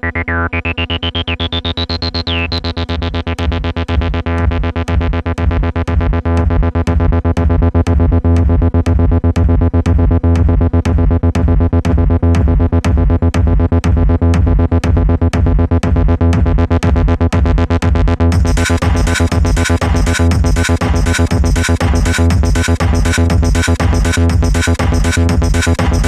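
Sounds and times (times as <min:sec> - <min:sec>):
gliding synth line: 0:00.0 - 0:02.7
acid techno on synthesizers: 0:00.0 - 0:26.0.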